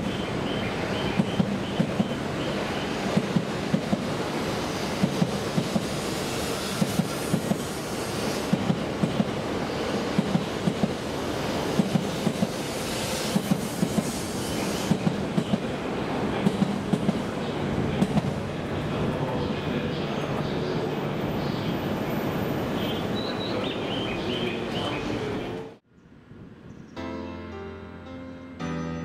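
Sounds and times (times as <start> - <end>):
train running noise: 0.0 - 25.8
train wheels clacking on track: 1.0 - 2.2, 3.0 - 15.8, 16.4 - 17.3, 17.9 - 18.4.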